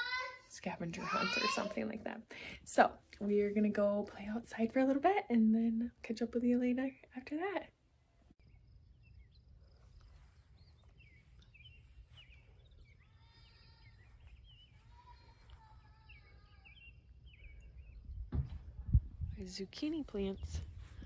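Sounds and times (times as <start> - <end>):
birds chirping and calling: 8.4 - 18.7.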